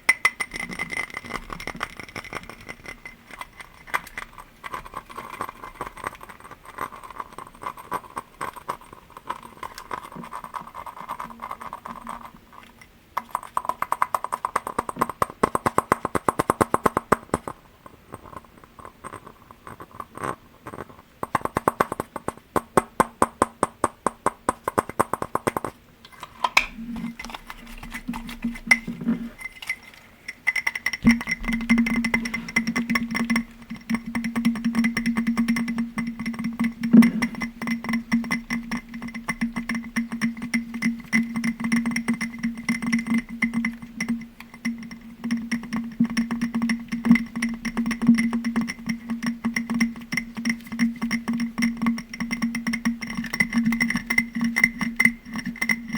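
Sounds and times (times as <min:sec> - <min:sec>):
fast tapping on glass: 0:00.0 - 0:25.8, 0:30.5 - 0:55.9
steady ringing tones: 0:28.5 - 0:55.9.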